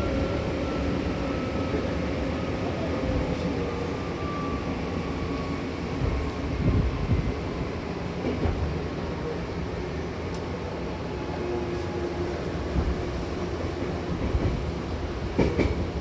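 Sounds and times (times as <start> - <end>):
train wheels rumbling on rails: 0.0 - 16.0
train knocking: 12.5 - 16.0.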